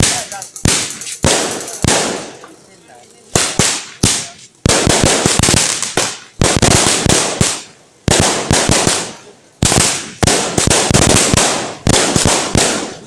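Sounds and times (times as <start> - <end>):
firecrackers cracking: 0.0 - 13.0.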